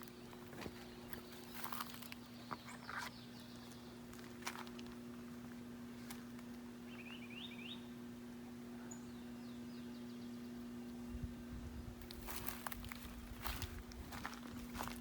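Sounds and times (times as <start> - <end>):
footsteps on dry leaves: 0.0 - 6.5, 12.0 - 15.0
faint low hum: 0.0 - 15.0
small bird chirping: 0.2 - 4.1, 6.8 - 7.9.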